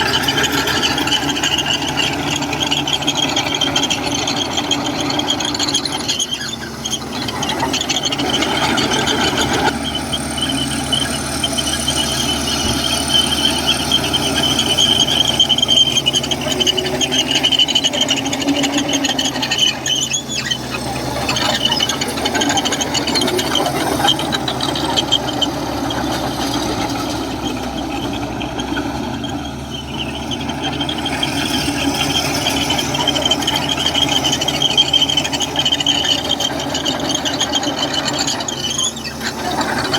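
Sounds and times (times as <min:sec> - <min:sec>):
diesel engine running: 0:00.0 - 0:39.9
steel tracks squealing: 0:00.0 - 0:39.9.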